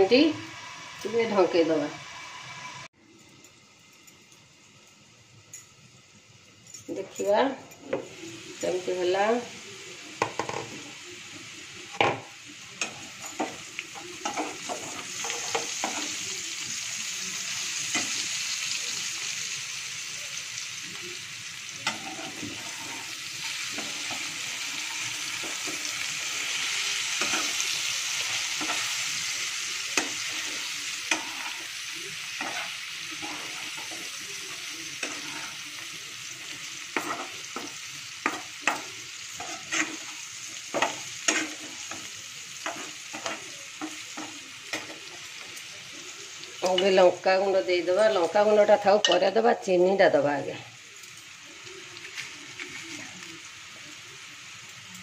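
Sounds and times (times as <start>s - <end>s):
radish slices sizzling in oil: 0.0s - 55.0s
spatula scraping and tapping pan: 12.8s - 16.2s, 21.8s - 26.0s, 27.2s - 29.0s, 29.9s - 31.8s, 32.4s - 34.2s, 35.0s - 35.6s, 36.4s - 45.5s.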